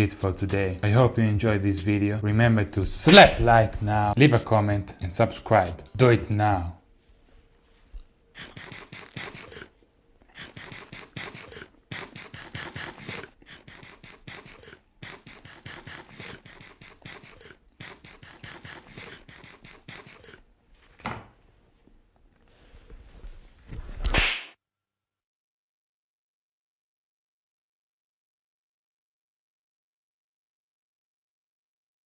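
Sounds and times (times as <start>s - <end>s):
chewing with crackling clicks: 8.4s - 20.4s.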